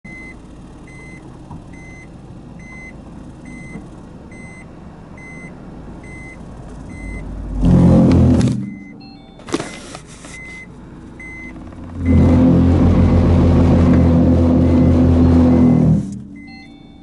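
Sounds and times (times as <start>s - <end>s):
reverse warning beeping: 0.1s - 17.0s
vehicle rumble: 0.1s - 17.0s
rough low grinding rumble: 6.7s - 9.3s, 10.8s - 17.0s.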